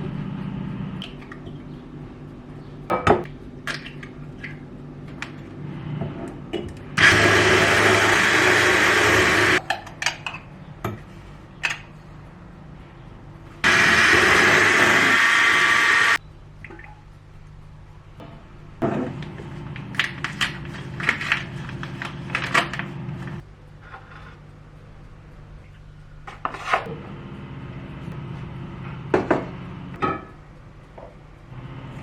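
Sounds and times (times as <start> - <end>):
blender motor running: 7.0 - 9.6, 13.6 - 16.2.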